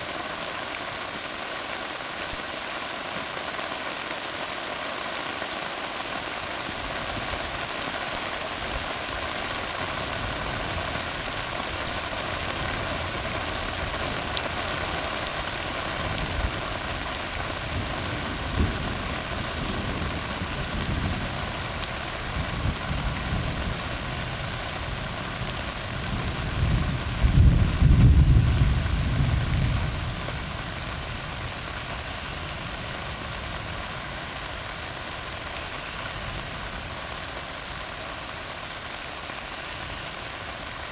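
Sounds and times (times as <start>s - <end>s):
rain falling on a road: 0.0s - 40.9s
low roll of thunder: 16.0s - 31.6s.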